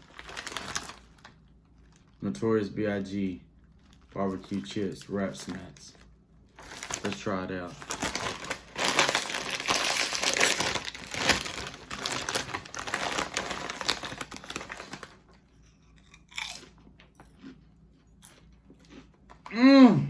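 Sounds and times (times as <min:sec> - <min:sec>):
person crunching potato chips: 0:00.0 - 0:02.2, 0:06.6 - 0:19.6.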